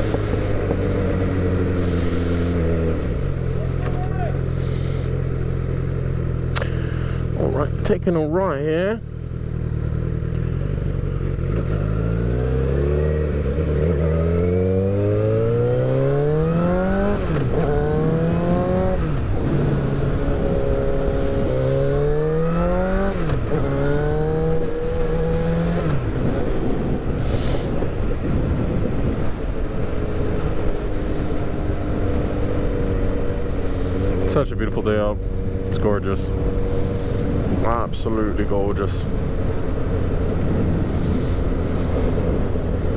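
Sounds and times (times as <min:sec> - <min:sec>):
wind rush: 0:00.0 - 0:03.8, 0:13.7 - 0:34.2, 0:36.4 - 0:42.9
motorcycle engine accelerating: 0:00.0 - 0:42.9.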